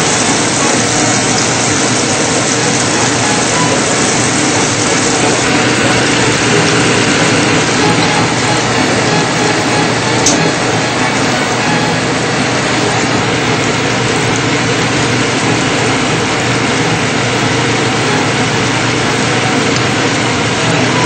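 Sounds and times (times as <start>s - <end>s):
mushrooms sizzling in hot oil: 0.0s - 20.4s.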